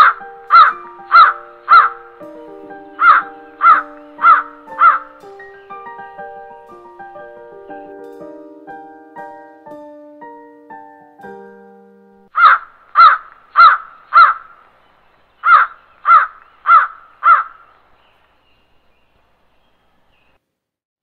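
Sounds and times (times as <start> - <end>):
crow cawing: 0.0 - 5.6, 12.3 - 14.6, 15.4 - 17.7
soft piano notes: 0.0 - 12.3.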